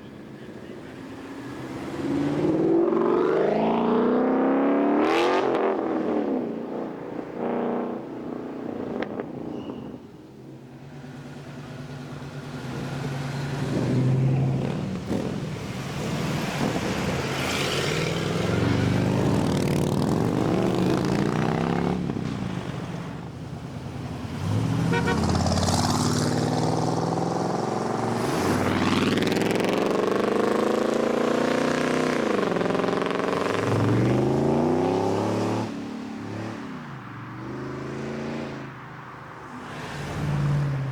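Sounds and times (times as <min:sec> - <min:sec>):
cars accelerating hard: 0:01.3 - 0:06.5, 0:23.9 - 0:38.8.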